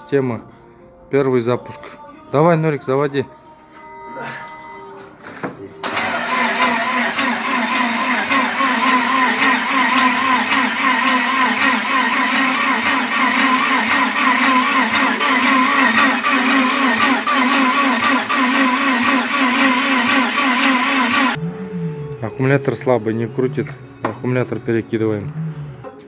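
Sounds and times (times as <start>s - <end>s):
starter motor cranking engine: 5.8s - 22.3s.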